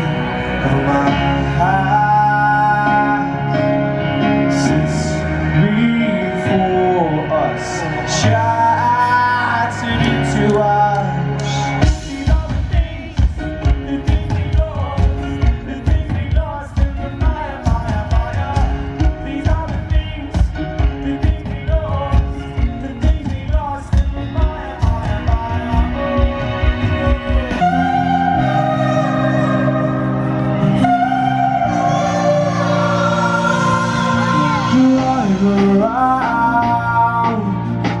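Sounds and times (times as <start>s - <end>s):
live pop-rock band: 0.0s - 38.0s
fast steady drumbeat: 11.8s - 27.6s.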